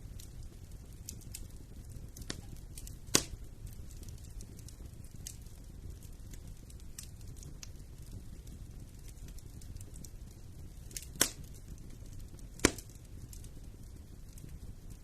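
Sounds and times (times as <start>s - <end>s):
low rumble of flames: 0.0s - 15.0s
wood fire crackling: 0.0s - 15.0s
loud sharp pop: 12.6s - 12.9s.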